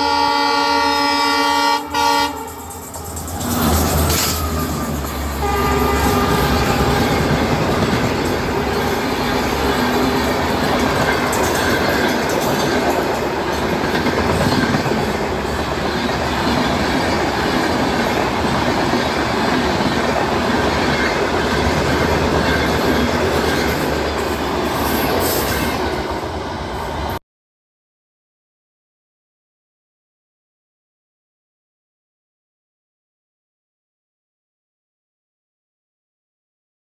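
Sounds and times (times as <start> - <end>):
train wheels clattering on track: 2.4 - 26.4.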